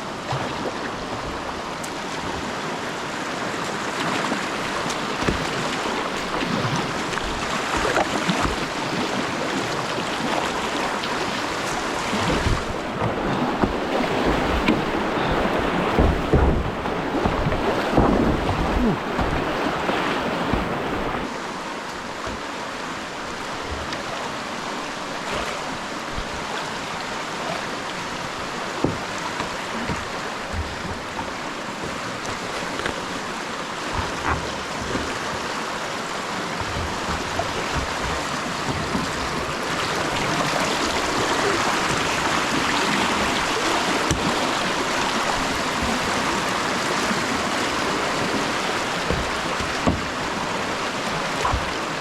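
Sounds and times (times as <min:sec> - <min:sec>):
river whitewater rushing: 0:00.0 - 0:52.0
sharp knocks: 0:15.9 - 0:19.5, 0:33.9 - 0:35.4, 0:49.0 - 0:50.2.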